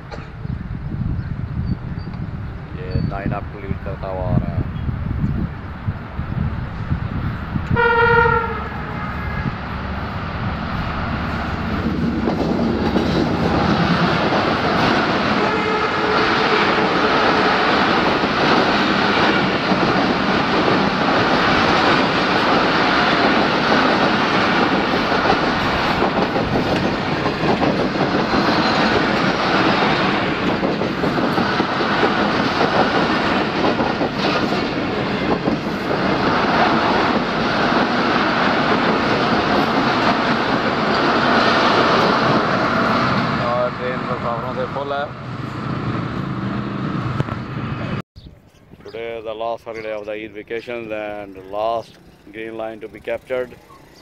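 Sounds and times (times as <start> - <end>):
passenger train passing: 0.0 - 48.0, 50.5 - 54.0
locomotive horn blast: 7.7 - 9.7, 15.3 - 17.6
wheels clattering over rail joints: 16.1 - 42.9.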